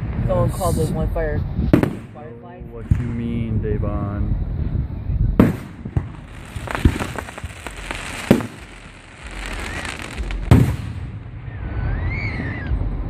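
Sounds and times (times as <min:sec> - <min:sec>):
fireworks crackling: 0:00.0 - 0:03.6, 0:05.4 - 0:11.6
fireworks bangs: 0:00.0 - 0:03.8, 0:05.4 - 0:13.0.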